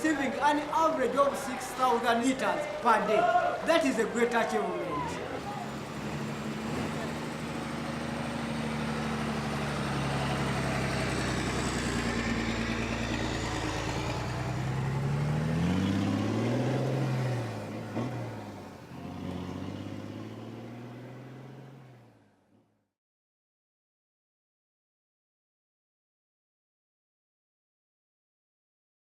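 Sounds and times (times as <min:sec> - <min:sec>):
vehicle engine revving: 0:05.0 - 0:22.5.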